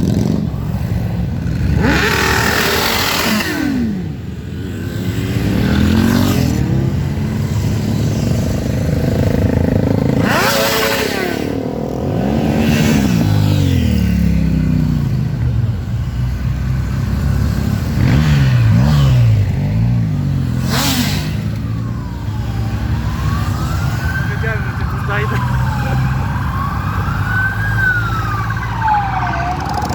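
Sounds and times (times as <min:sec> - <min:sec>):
motorcycles revving past: 0:00.0 - 0:24.3
siren wailing: 0:21.4 - 0:29.9.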